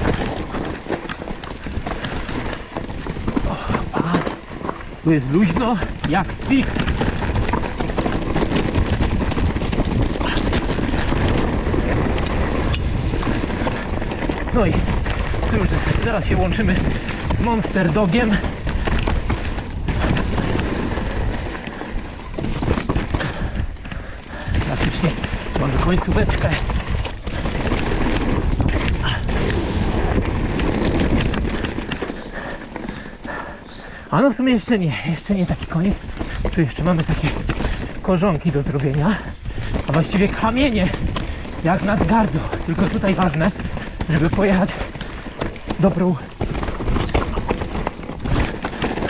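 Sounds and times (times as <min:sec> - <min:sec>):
wind rumble on microphone: 0:00.0 - 0:34.0
bike rattling over stones: 0:00.0 - 0:49.0
tyres crunching on stones: 0:00.0 - 0:49.0.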